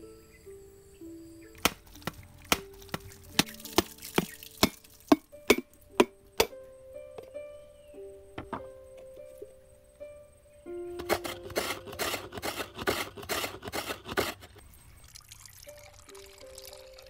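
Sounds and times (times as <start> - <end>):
plucked background music: 0.0 - 14.3
coconut being struck: 1.6 - 7.3.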